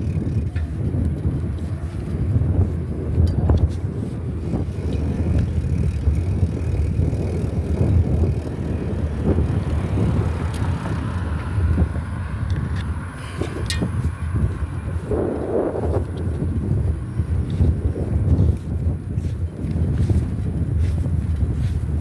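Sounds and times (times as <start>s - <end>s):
small clicks and rattles: 0.0s - 2.2s, 4.4s - 14.0s
bicycle tyre and road noise: 0.0s - 22.0s
wind rumbling on microphone: 0.0s - 22.0s.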